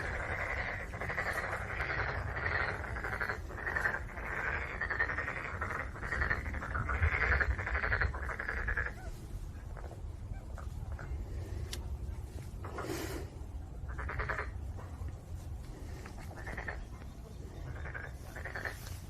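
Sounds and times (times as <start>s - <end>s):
frog croaking in pulsed bursts: 0.0s - 9.0s, 13.8s - 14.7s, 16.2s - 17.0s, 17.6s - 19.0s.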